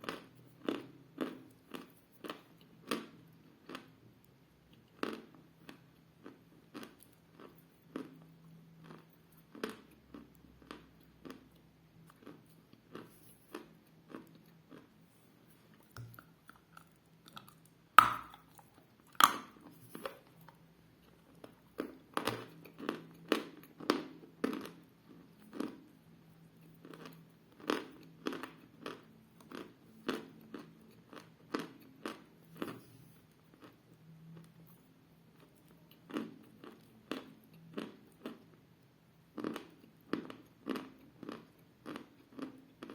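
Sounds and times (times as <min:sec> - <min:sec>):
crunchy chewing: 0:04.7 - 0:25.8
sharp bites into hard clay: 0:18.0 - 0:18.4.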